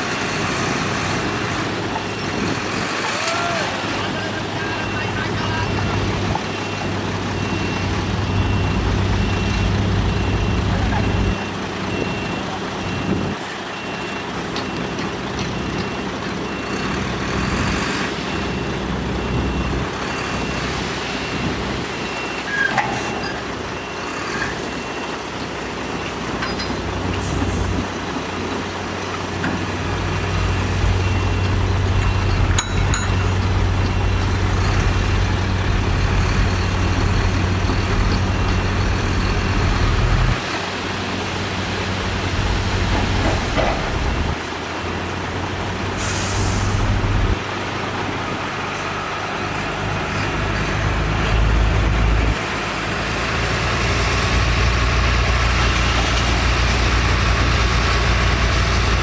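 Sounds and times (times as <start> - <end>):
heavy diesel machinery engine: 0.0 - 59.0
reversing alarm beeping: 0.4 - 40.6, 41.2 - 44.5.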